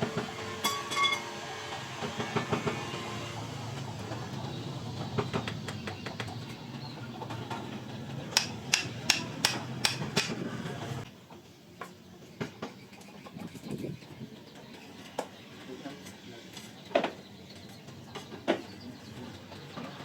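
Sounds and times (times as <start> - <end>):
scattered knocks: 8.3 - 10.4
hand tool tapping on masonry: 8.4 - 10.4.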